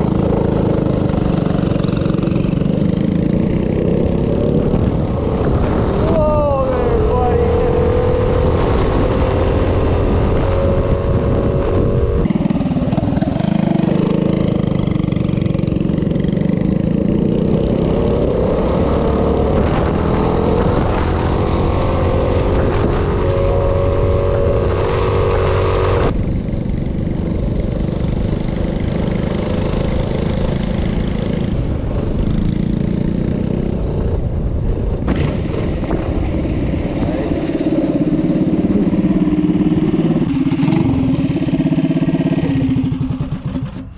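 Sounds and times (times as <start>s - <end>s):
minibike engine running: 0.0s - 7.8s, 11.1s - 18.3s, 37.0s - 43.9s.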